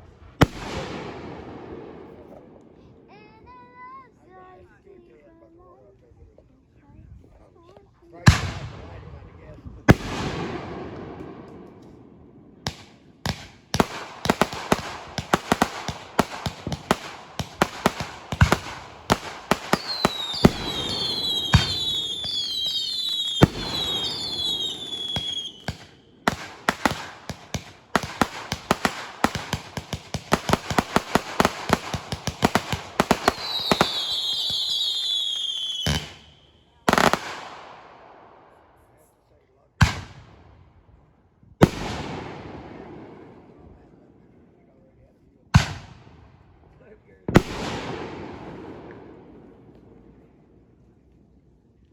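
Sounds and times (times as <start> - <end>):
fireworks bangs and crackles: 0.0 - 3.6, 8.3 - 38.2, 39.8 - 40.7, 41.6 - 44.1, 45.6 - 50.4
firework whistles falling in pitch: 19.8 - 25.6.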